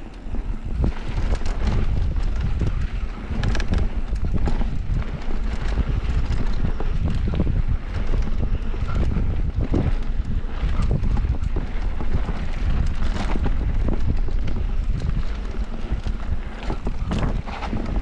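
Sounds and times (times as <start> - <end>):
bike frame rattling: 0.0 - 18.0
bike tyres rumbling on dirt: 0.0 - 18.0
wind buffeting microphone: 0.0 - 18.0.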